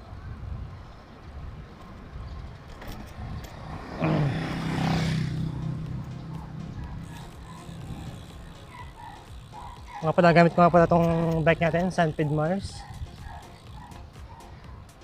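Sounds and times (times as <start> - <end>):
wind rumbling on microphone: 0.0 - 8.6
motor vehicle passing: 1.8 - 15.0.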